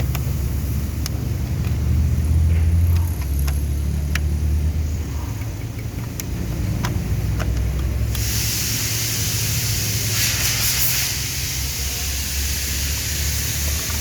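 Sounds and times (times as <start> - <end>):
rushing hiss of air: 8.1 - 14.0.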